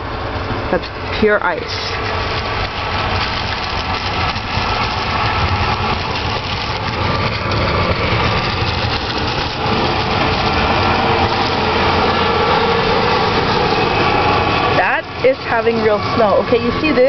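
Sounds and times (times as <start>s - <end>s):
snowblower engine running: 0.0s - 17.0s.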